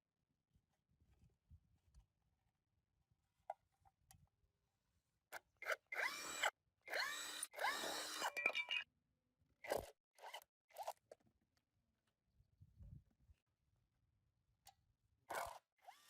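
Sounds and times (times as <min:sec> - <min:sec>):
hand-held power tool whining: 0:05.3 - 0:08.6, 0:09.6 - 0:11.1, 0:15.3 - 0:16.0.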